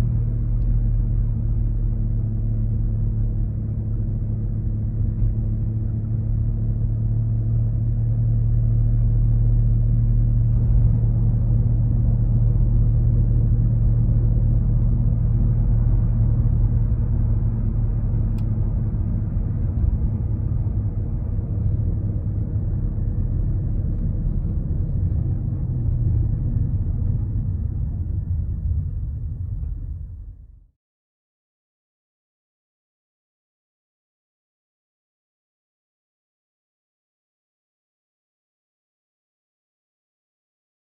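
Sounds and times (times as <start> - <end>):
car low rumbling drone: 0.0 - 30.8.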